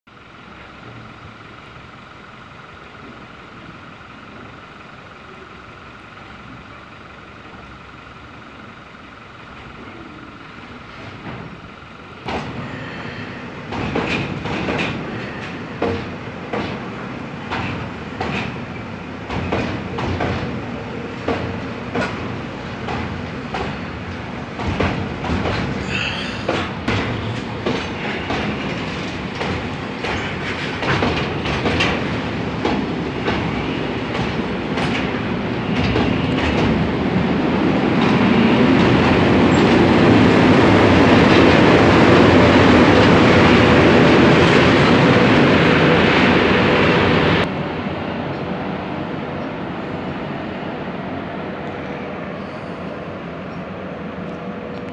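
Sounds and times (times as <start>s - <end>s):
freight train rumble: 0.1s - 54.9s
train wheels clacking over rail joints: 10.9s - 45.6s.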